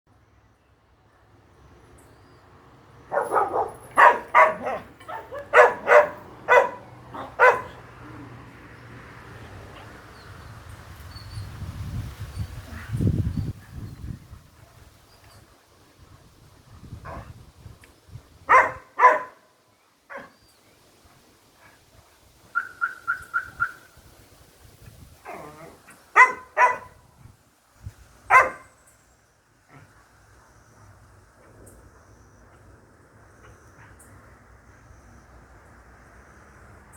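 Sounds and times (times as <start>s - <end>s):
dog barking: 3.1s - 7.8s, 18.5s - 19.4s, 20.1s - 20.3s, 26.2s - 27.0s, 28.3s - 28.7s.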